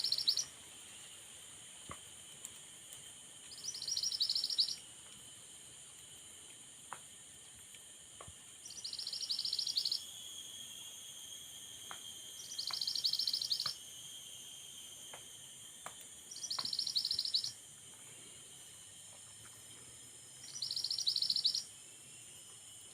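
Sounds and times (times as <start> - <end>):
bird high-pitched trill: 0.0 - 0.5, 3.5 - 4.8, 8.7 - 10.1, 12.4 - 13.8, 16.3 - 17.6, 20.5 - 21.7
insects hissing: 0.0 - 22.9.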